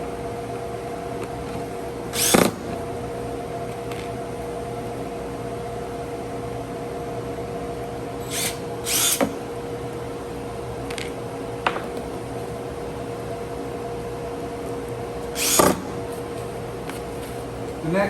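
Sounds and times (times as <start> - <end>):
steady background hum: 0.0 - 18.0
power drill driving a screw: 2.1 - 2.6, 8.2 - 9.4, 15.3 - 15.8.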